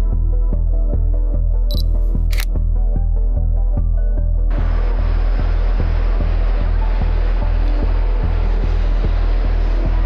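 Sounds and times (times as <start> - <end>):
camera shutter click: 1.7 - 2.5.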